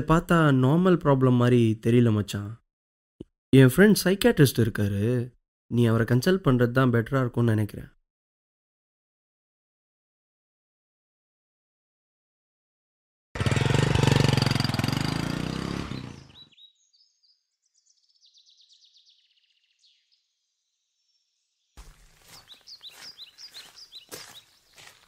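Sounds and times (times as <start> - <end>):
small motorcycle engine: 13.4 - 16.4
birds chirping: 15.6 - 20.3, 21.8 - 25.0
footsteps on rough ground: 21.8 - 25.0.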